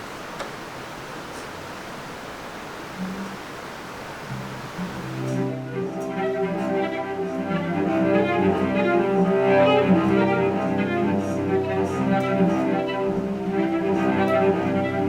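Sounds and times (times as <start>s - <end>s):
bowed strings playing: 4.3s - 15.0s.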